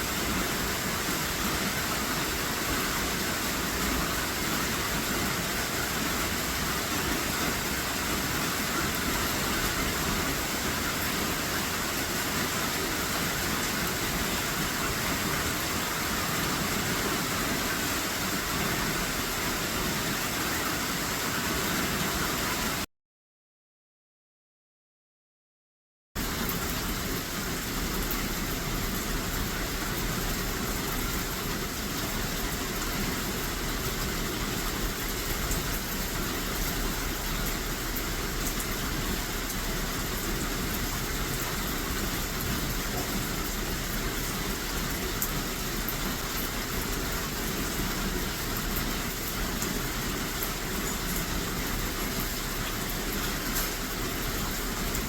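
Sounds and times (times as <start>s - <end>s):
heavy rain rushing: 0.0s - 22.9s, 26.2s - 55.0s
raindrops ticking: 26.2s - 55.0s.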